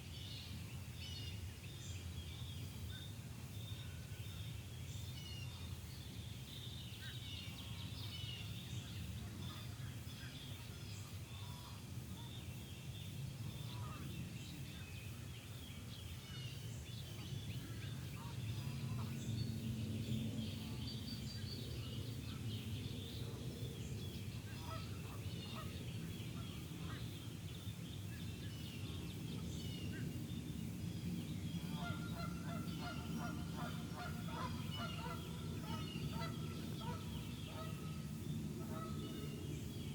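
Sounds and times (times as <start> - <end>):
small birds chirping: 0.0 - 39.9
steady low rumble: 16.8 - 39.9
geese honking: 31.6 - 39.2.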